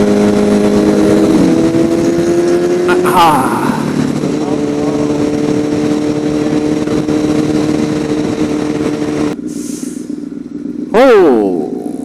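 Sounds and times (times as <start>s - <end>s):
wind rush on microphone: 0.0s - 2.9s, 3.8s - 9.4s
motorcycle engine running: 0.0s - 12.0s.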